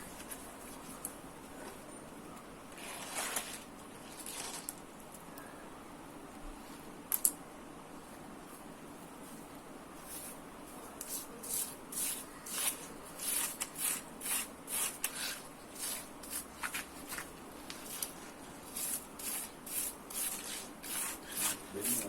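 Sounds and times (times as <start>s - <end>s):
brush scrubbing rasps: 11.1s - 22.0s.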